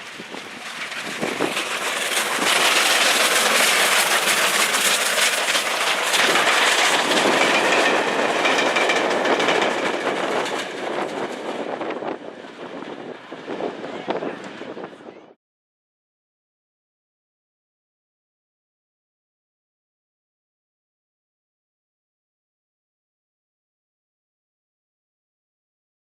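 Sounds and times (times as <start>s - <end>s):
train wheels clattering over rails: 0.0s - 13.3s.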